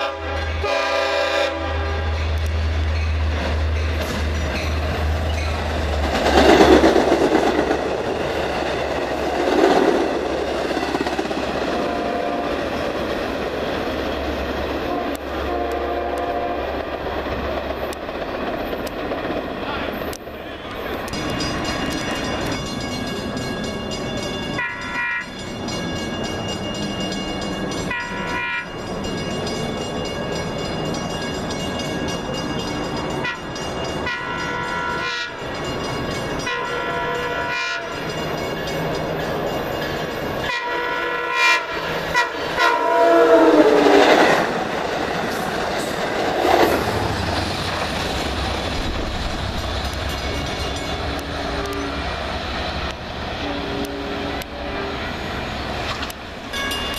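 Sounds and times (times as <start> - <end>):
train horn blasts: 0.0 - 2.2, 11.7 - 12.7, 14.8 - 16.8, 24.6 - 25.3, 27.9 - 28.7, 33.2 - 35.4, 36.4 - 38.1, 40.4 - 44.4, 51.0 - 52.1, 53.4 - 55.5
low rumble of passing train: 0.0 - 56.9.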